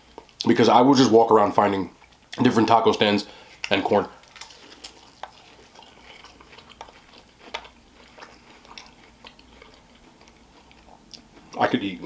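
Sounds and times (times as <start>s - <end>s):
person chewing food: 0.0s - 0.5s, 1.9s - 12.0s
mouth clicks and small crunches: 3.4s - 12.0s.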